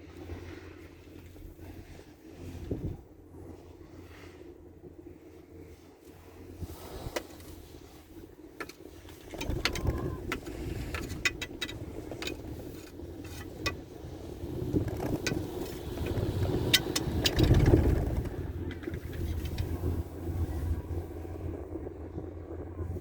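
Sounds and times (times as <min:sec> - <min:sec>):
chairlift mechanical rumble: 0:00.0 - 0:23.0
chair clicking over rollers: 0:09.2 - 0:13.7, 0:14.7 - 0:19.7.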